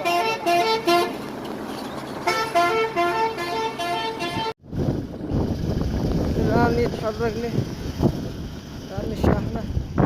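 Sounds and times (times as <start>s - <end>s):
two-note musical vehicle horn: 0.0s - 1.3s, 2.2s - 4.6s.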